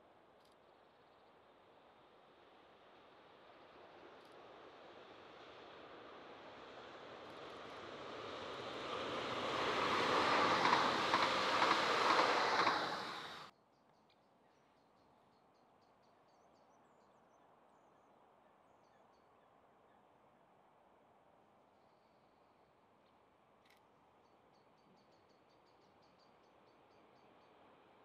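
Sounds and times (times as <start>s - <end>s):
train passing rush: 2.5s - 13.5s.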